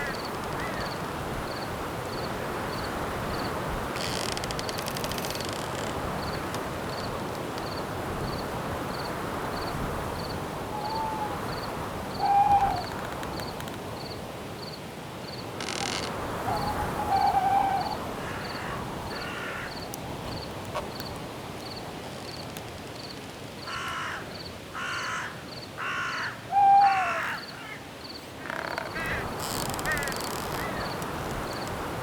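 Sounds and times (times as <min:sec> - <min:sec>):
wind hiss: 0:00.0 - 0:23.8, 0:27.4 - 0:32.0
crickets chirping: 0:00.0 - 0:32.0
owl hooting: 0:10.7 - 0:13.0, 0:16.4 - 0:18.4, 0:25.9 - 0:27.8.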